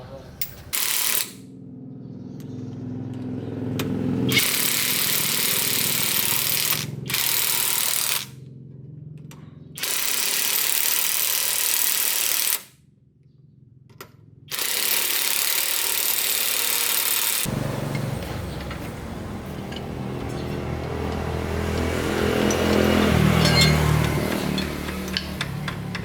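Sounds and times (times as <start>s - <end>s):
low motor hum: 1.5s - 9.9s, 17.4s - 26.0s.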